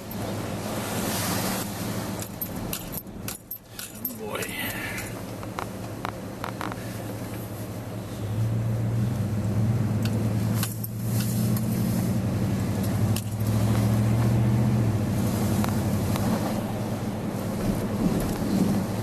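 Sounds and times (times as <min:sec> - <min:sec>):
light clicks and knocks: 0:02.2 - 0:07.4.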